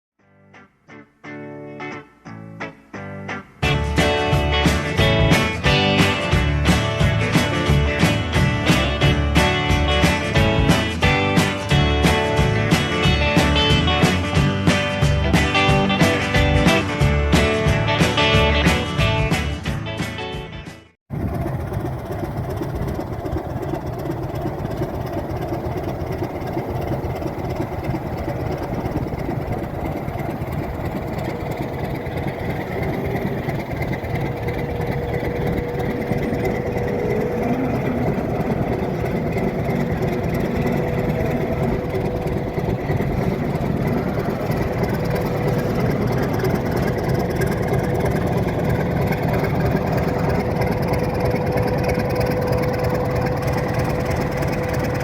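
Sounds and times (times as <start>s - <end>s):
diesel locomotive engine running: 3.7s - 19.4s, 21.1s - 55.0s
steady hum: 21.1s - 55.0s.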